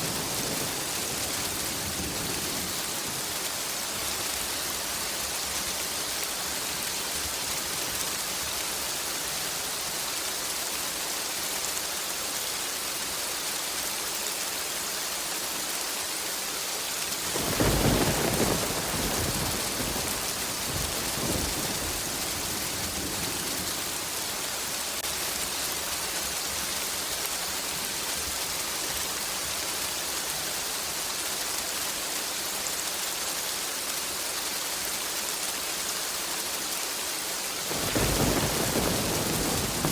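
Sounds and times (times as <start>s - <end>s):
steady rain: 0.0s - 39.9s
thunder clap rolling: 17.3s - 24.2s, 37.7s - 39.9s.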